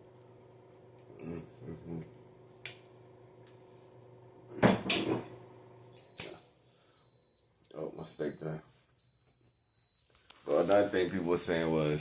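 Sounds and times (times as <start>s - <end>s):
oven timer beeping: 7.0s - 7.5s, 8.2s - 10.1s.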